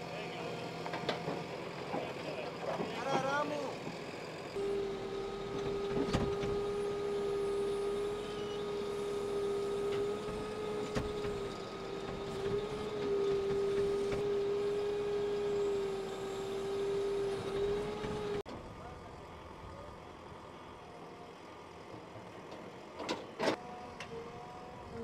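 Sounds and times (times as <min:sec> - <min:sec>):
motor whining: 0:03.6 - 0:18.5.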